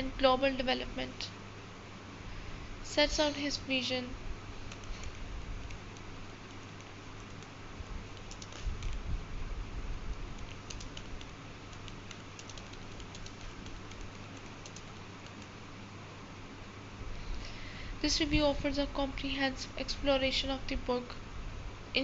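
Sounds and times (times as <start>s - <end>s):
low hum and hiss: 0.0s - 22.0s.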